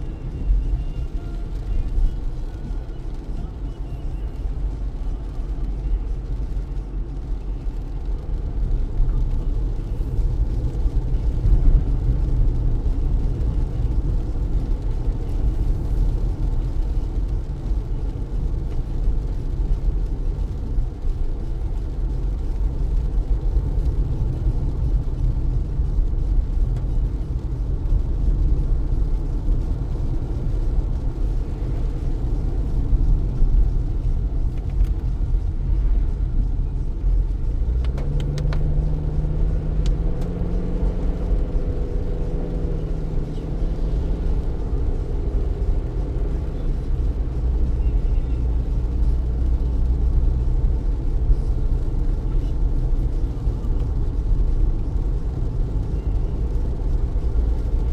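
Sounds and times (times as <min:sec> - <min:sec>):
tyres rumbling on wet road: 0:00.0 - 0:57.9.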